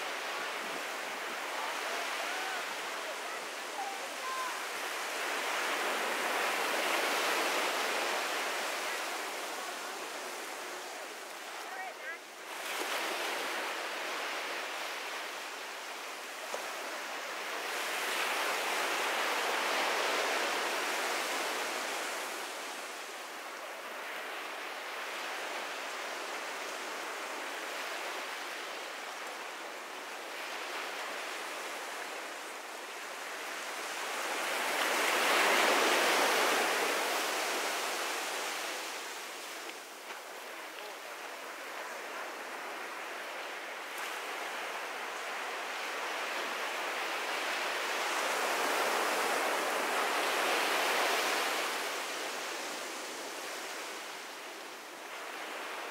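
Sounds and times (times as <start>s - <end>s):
surf breaking on beach: 0.0s - 15.4s.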